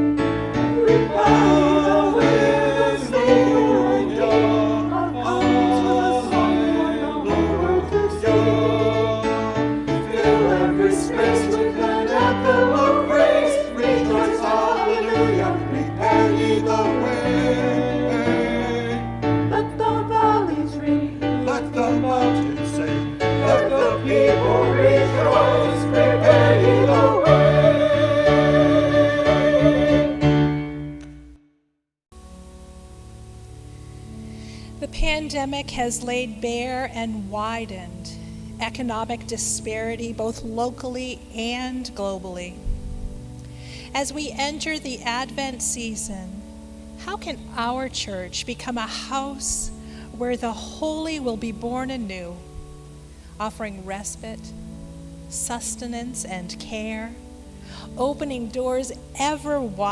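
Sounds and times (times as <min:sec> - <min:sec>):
people singing worship song: 0:00.0 - 0:30.5
keyboard accompaniment: 0:00.0 - 0:31.4.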